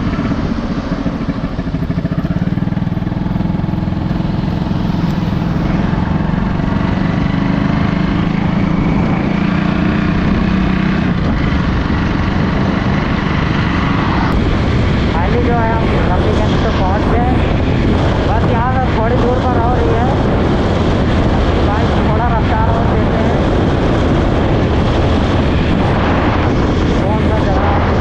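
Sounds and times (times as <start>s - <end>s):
motorcycle engine running: 0.0s - 28.0s
wind rushing on microphone: 0.0s - 28.0s.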